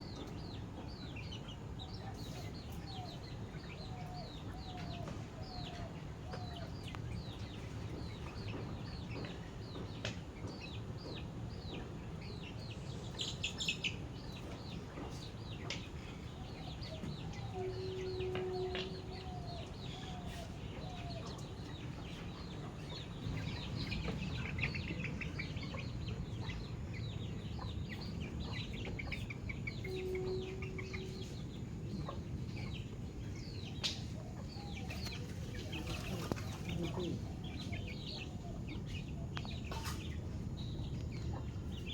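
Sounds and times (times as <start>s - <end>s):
chicks peeping: 0.1s - 41.9s
low background rumble: 5.4s - 41.9s.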